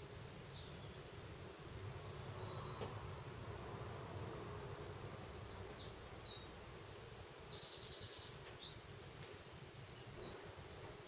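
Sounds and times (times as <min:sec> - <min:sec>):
small bird chirping and trilling: 0:00.0 - 0:01.1, 0:02.0 - 0:03.0, 0:05.2 - 0:10.4.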